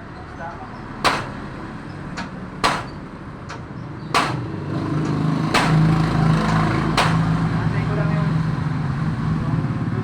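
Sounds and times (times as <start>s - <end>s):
engine hum: 0.0s - 10.0s
hammer blows: 1.0s - 1.5s, 2.6s - 3.0s, 4.2s - 4.5s, 5.5s - 6.1s, 6.9s - 7.3s.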